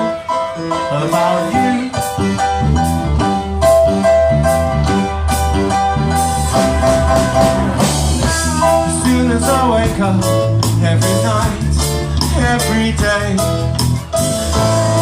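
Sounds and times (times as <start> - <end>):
person singing: 0.0 - 3.0, 7.4 - 15.0
rock band playing live: 0.0 - 15.0.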